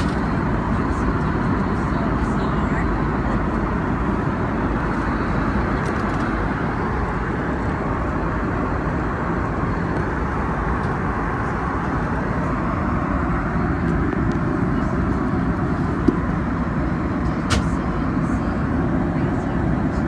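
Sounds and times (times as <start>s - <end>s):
airplane cabin roar: 0.0s - 20.0s.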